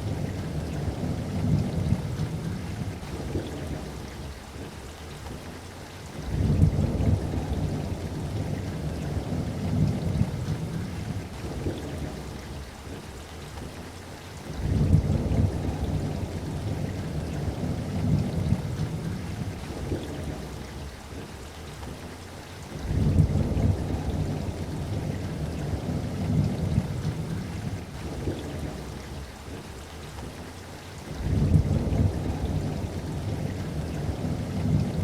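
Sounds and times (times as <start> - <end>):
rolling thunder: 0.0 - 4.8, 6.2 - 12.7, 14.5 - 21.3, 22.8 - 29.7, 31.1 - 35.0
steady rain: 0.0 - 35.0.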